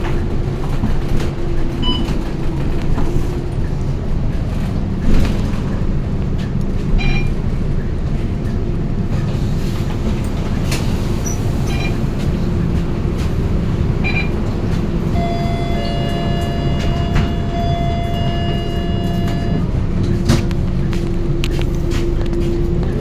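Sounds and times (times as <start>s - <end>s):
bus engine and road drone: 0.0s - 23.0s
steady electronic tone: 15.1s - 19.7s.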